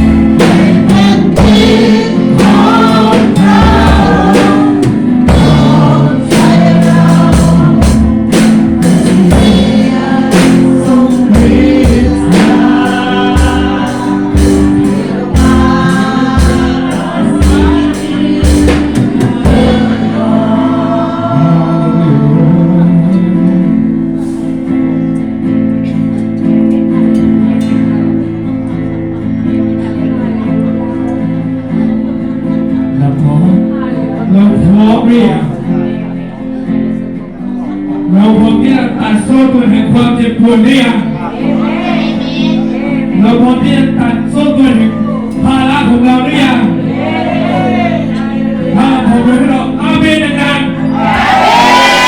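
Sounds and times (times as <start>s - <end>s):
gospel singing with band: 0.0s - 25.2s, 38.1s - 52.0s.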